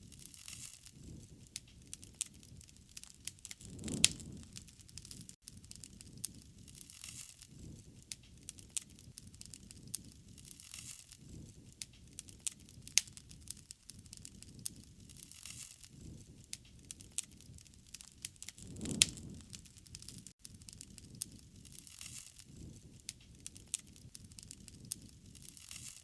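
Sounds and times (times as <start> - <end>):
pops and snaps of fire: 0.0 - 26.0
wood fire crackling: 0.0 - 26.0.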